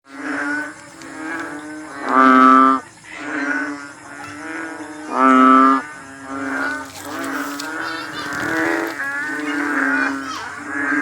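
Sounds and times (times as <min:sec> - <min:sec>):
frog calling: 0:00.1 - 0:11.0.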